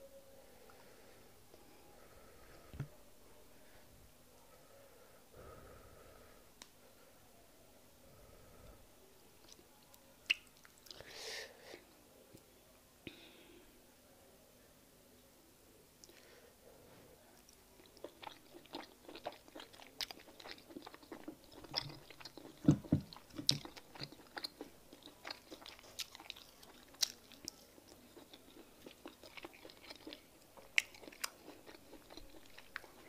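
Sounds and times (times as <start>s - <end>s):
wet chewing sounds: 17.4s - 33.0s.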